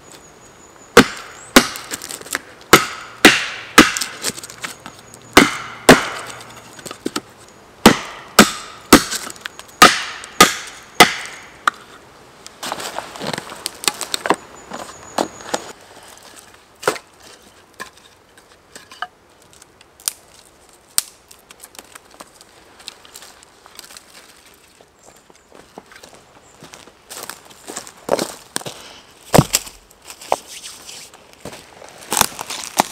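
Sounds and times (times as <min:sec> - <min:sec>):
axe chopping wood: 0:01.0 - 0:04.5, 0:05.4 - 0:11.8, 0:29.3 - 0:29.7
rustling of handled wood: 0:01.7 - 0:02.7, 0:04.0 - 0:05.2, 0:06.1 - 0:07.6, 0:09.0 - 0:09.8, 0:10.7 - 0:32.9.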